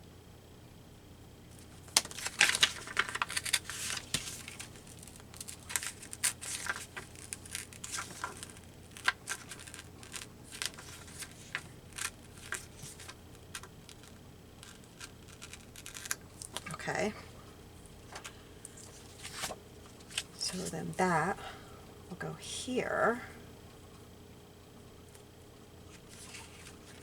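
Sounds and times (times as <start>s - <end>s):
paper tearing: 1.9s - 16.7s.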